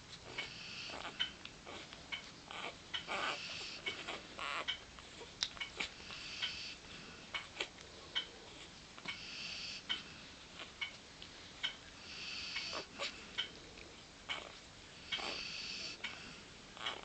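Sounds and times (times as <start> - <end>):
puppies nursing sucking clicks: 0.1 - 17.0.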